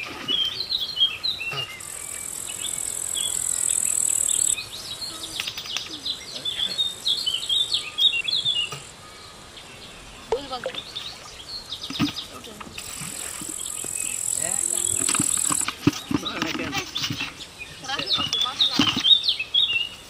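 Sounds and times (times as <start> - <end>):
birds chirping: 0.0 - 20.0
high-pitched insect buzz: 1.5 - 4.6, 12.8 - 16.1.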